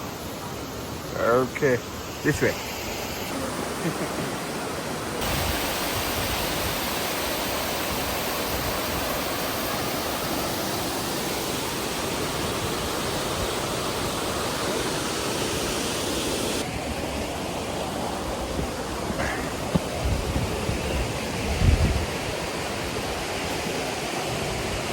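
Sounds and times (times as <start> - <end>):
flowing water rushing: 0.0 - 24.9.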